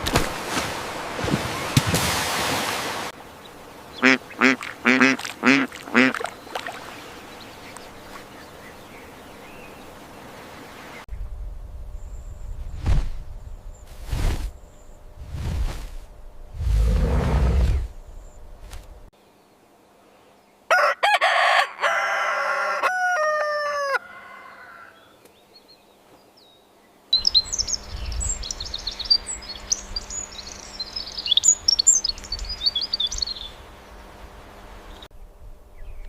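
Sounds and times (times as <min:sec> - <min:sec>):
small birds chirping: 0:03.4 - 0:11.1, 0:25.0 - 0:34.1
low outdoor rumble: 0:11.1 - 0:19.1
rooster crowing: 0:20.7 - 0:25.2.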